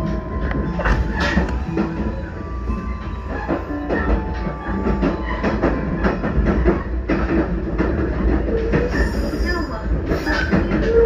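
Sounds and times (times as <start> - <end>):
electric train rumbling: 0.0 - 11.0
train wheel squeals: 0.0 - 11.0
wheels clicking on rails: 0.0 - 11.0.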